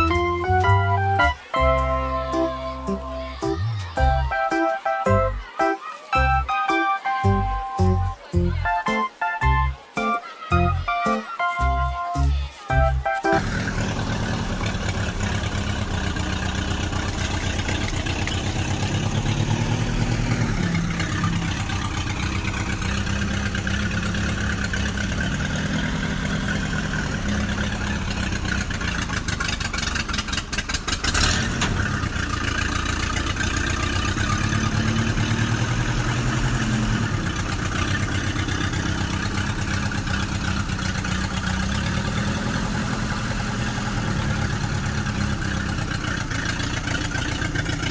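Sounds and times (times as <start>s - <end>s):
small tractor engine running: 13.4s - 47.9s
rapid clatter: 20.7s - 34.2s.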